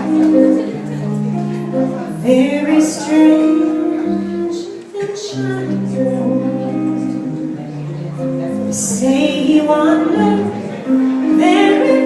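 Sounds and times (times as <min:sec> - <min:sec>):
guitar: 0:00.0 - 0:12.0
woman singing: 0:02.0 - 0:07.4, 0:08.6 - 0:12.0.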